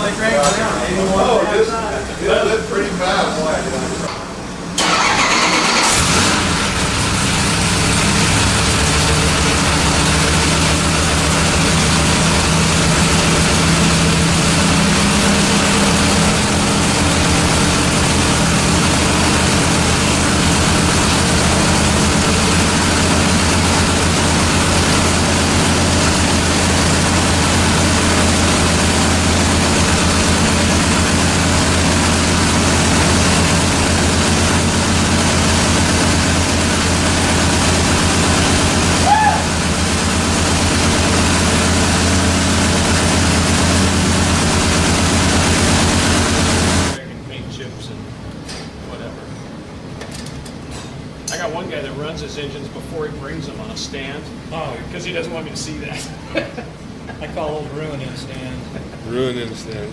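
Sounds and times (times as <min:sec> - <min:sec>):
engine starting and running: 0:04.0 - 0:47.0.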